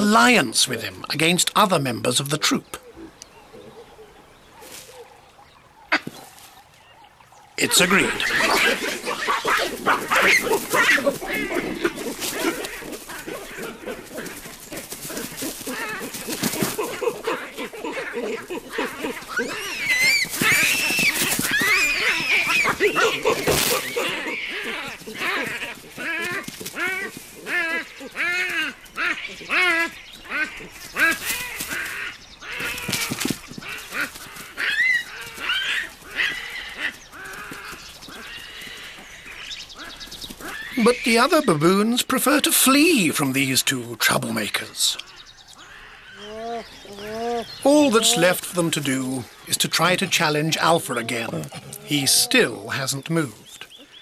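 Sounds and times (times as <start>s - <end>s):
baboons calling: 7.6s - 54.0s
baboon harsh screeches: 7.7s - 14.4s, 16.8s - 33.1s.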